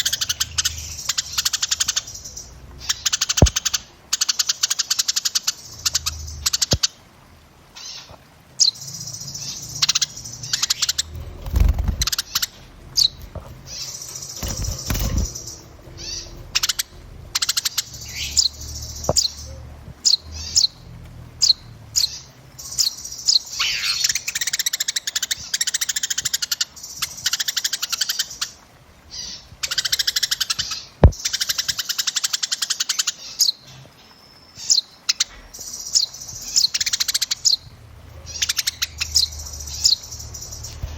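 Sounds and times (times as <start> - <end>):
songbirds chirping and trilling: 0.0 - 40.9
low thumps: 11.0 - 17.4.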